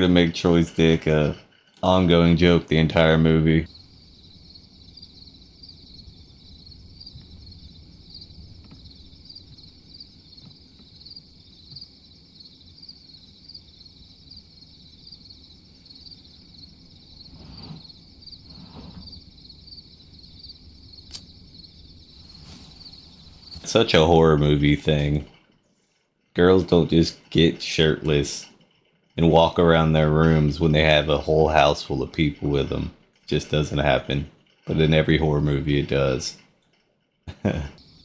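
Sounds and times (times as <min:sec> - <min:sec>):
crickets chirping: 0:00.0 - 0:38.0
soft rustles: 0:17.2 - 0:19.2, 0:22.1 - 0:23.8.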